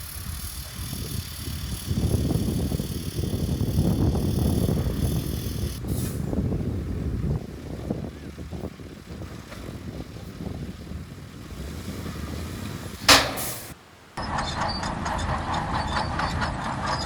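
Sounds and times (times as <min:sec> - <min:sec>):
diesel machinery rumbling: 0:00.0 - 0:17.0
sharp click: 0:13.1 - 0:13.8.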